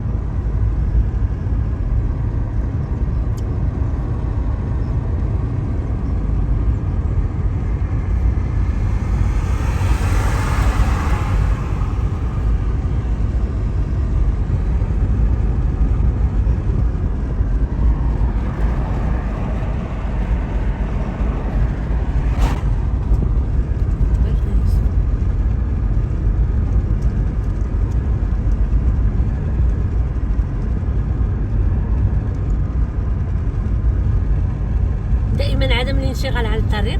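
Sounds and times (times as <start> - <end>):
car road and engine noise: 0.0 - 36.9
rushing swell: 7.1 - 15.2, 17.4 - 24.6.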